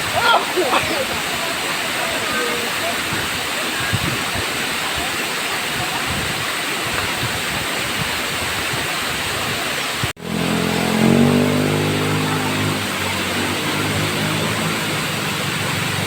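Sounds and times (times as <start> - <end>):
waterfall rushing: 0.0 - 16.0
low drone: 10.2 - 16.0.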